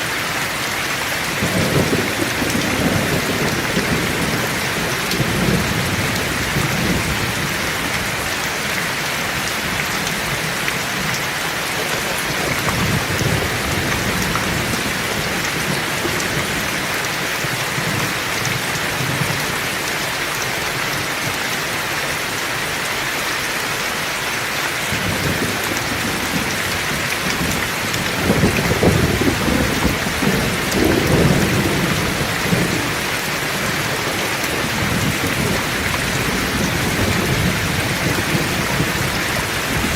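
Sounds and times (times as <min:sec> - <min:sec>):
heavy rain: 0:00.0 - 0:39.9
low thunder rumbling: 0:01.2 - 0:08.2, 0:12.1 - 0:18.2, 0:24.9 - 0:39.9.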